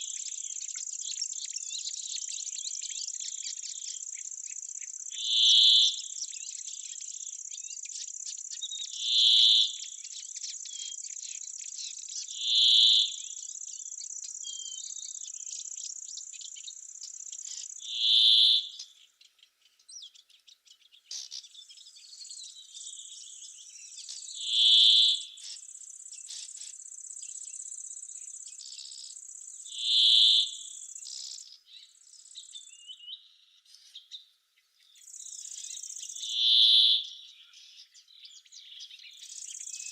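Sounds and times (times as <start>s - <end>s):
lower animal call: 17.9s - 18.8s, 24.4s - 25.2s.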